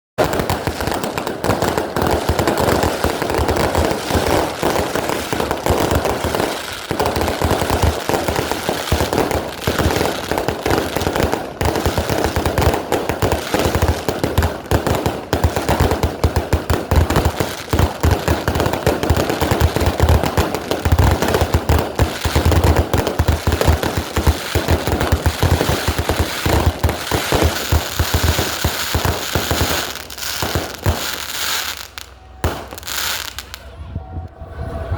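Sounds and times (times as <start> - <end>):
fireworks crackle: 0.2 - 33.7
fireworks barrage of sharp bangs: 0.2 - 34.2.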